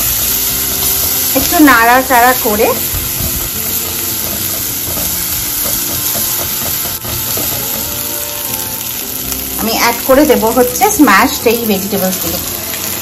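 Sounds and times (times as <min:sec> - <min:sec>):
onions sizzling in a pan: 0:00.0 - 0:13.0
spatula stirring in a pan: 0:02.8 - 0:09.5.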